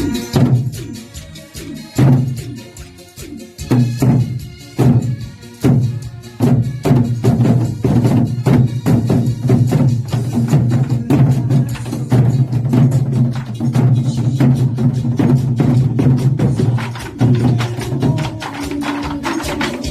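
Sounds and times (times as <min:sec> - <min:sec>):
hard drum strikes: 0:00.0 - 0:00.9, 0:03.6 - 0:19.9
recorded trot song: 0:16.6 - 0:19.9.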